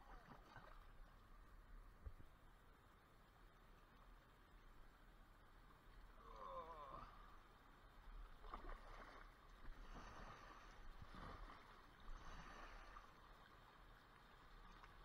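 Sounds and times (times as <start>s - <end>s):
kayak paddle swishing in water: 8.4s - 15.0s.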